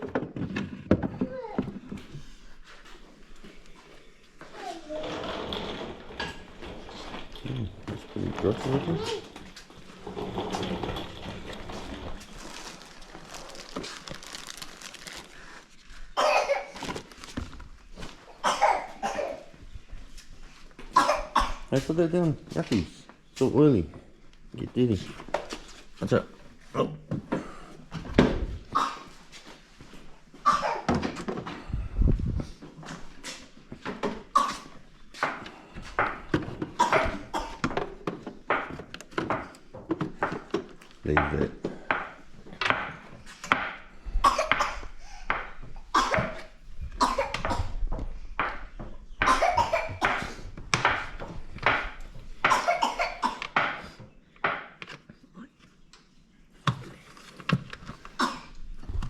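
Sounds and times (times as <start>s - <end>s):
person coughing: 16.2s - 16.7s, 18.4s - 19.4s, 47.0s - 47.7s, 49.3s - 50.4s, 52.5s - 53.5s.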